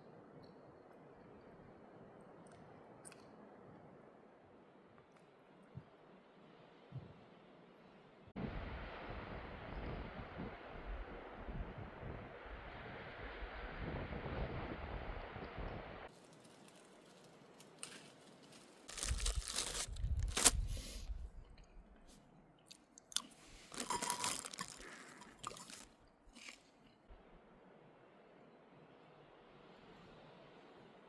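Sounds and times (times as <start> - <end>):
crunchy snack chewing: 18.9 - 21.6, 22.7 - 26.7
wind buffeting microphone: 19.0 - 21.9.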